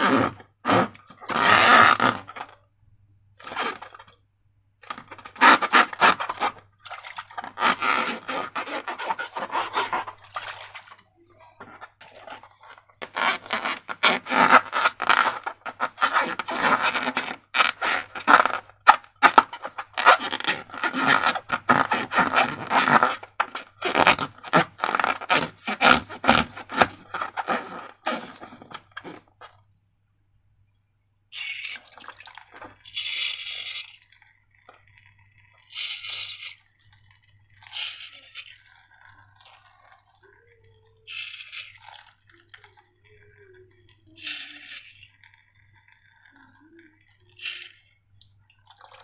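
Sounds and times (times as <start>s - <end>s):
slime and balloons scraping: 0.0s - 2.6s, 3.4s - 4.1s, 4.8s - 29.6s, 31.4s - 34.0s, 35.6s - 36.8s, 37.6s - 40.0s, 41.1s - 42.7s, 44.2s - 46.6s, 47.4s - 47.8s.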